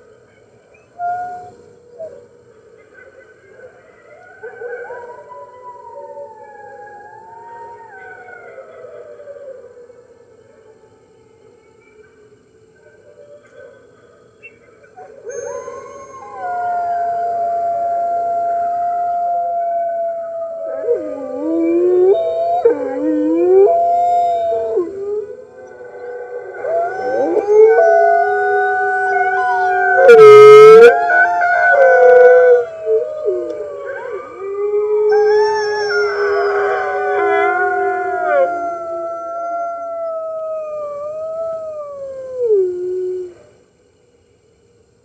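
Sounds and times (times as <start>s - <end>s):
wolves howling: 15.1s - 43.5s.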